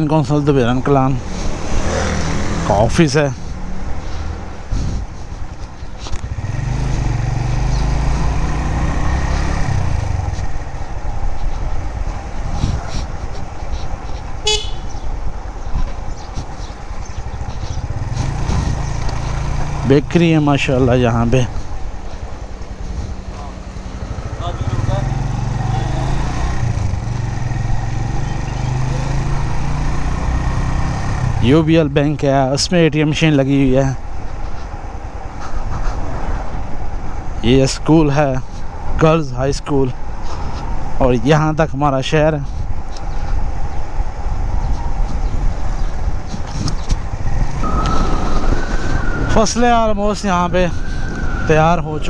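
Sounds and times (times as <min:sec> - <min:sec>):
motorcycle engine running: 0:01.4 - 0:20.1, 0:20.8 - 0:31.6.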